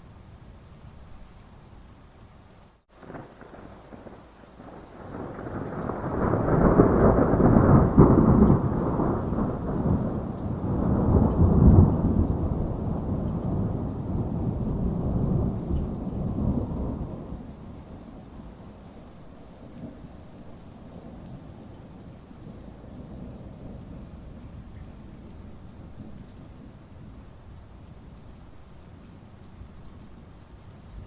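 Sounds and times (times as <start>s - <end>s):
rain hissing: 0.1s - 31.0s
rolling thunder: 3.0s - 26.7s.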